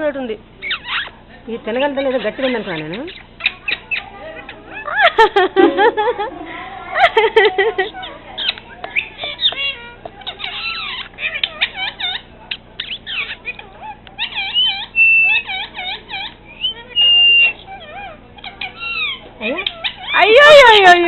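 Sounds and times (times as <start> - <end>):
parrot chattering: 0.6 - 5.3, 7.8 - 21.0
parrot whistles: 14.2 - 20.2.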